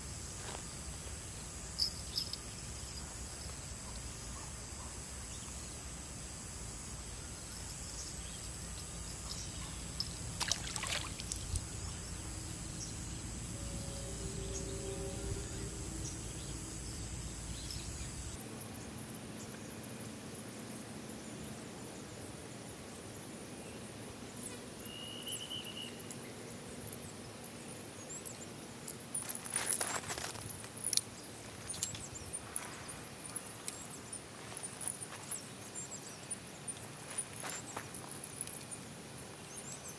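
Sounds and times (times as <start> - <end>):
insects chirring: 0.0 - 39.9
low rumble: 12.2 - 18.4.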